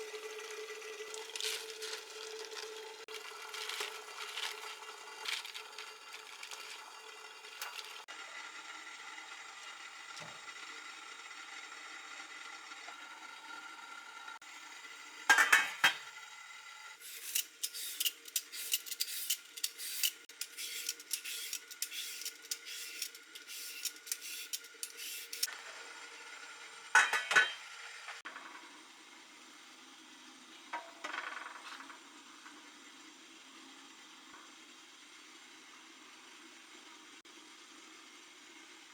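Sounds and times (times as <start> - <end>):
utensils clinking against dishes: 15.3 - 16.0, 17.0 - 25.5, 27.0 - 27.7.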